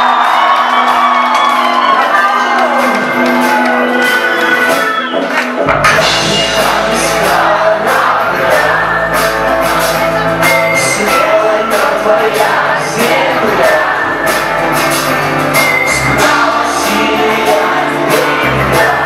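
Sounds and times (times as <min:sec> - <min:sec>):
crowd singing and shouting along: 0:00.0 - 0:19.0
live rock band playing: 0:00.0 - 0:19.0.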